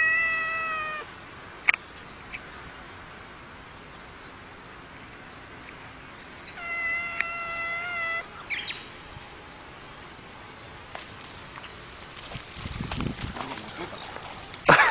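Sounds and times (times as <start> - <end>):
cat yowling: 0.0 - 1.1, 6.6 - 8.4.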